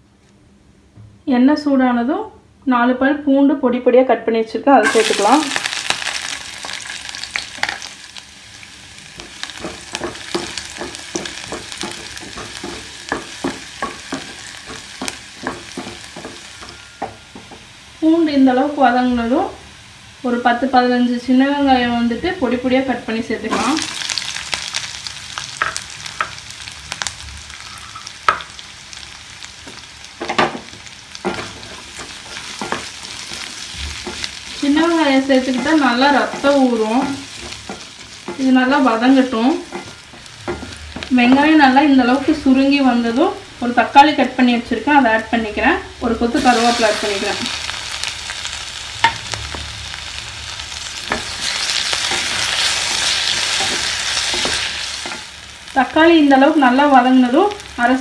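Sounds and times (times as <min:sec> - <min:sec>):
shallots sizzling in hot oil: 0:04.8 - 0:58.0
wooden spatula stirring: 0:09.2 - 0:17.5, 0:31.2 - 0:42.4.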